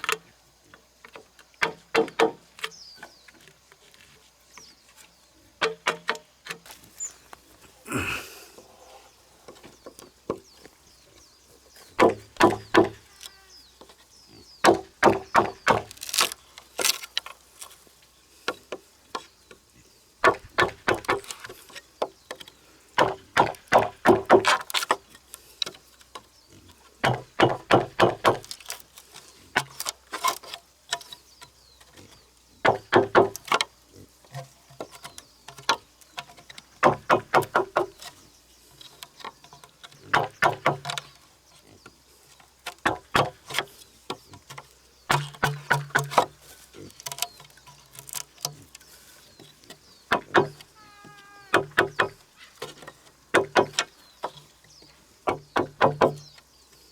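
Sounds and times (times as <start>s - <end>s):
tool striking wood: 1.6s - 2.4s, 12.0s - 13.0s, 14.6s - 16.3s, 20.2s - 21.3s, 23.0s - 24.6s, 27.0s - 28.5s, 32.6s - 33.6s, 36.8s - 38.0s, 40.1s - 41.0s, 42.8s - 43.6s, 44.5s - 46.3s, 50.1s - 50.7s, 51.5s - 52.2s, 53.3s - 54.0s, 55.3s - 56.3s.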